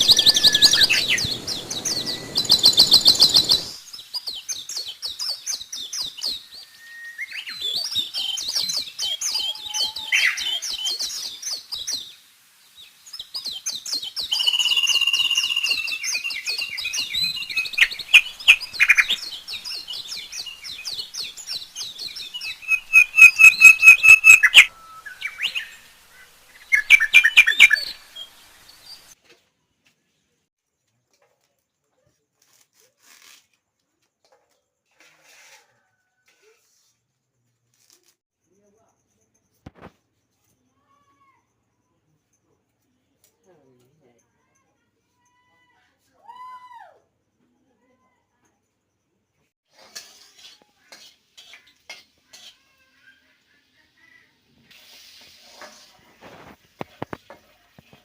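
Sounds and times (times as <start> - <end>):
birds chirping and trilling: 0.0 - 11.8, 13.2 - 29.2.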